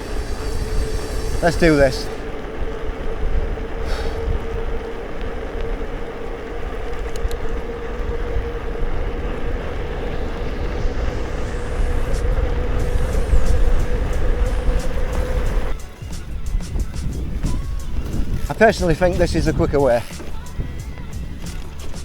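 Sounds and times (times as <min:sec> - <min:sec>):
steady mid-pitched hum: 0:00.0 - 0:21.7
wind rumbling on microphone: 0:00.0 - 0:22.0
light clicks and rattles: 0:14.8 - 0:22.0.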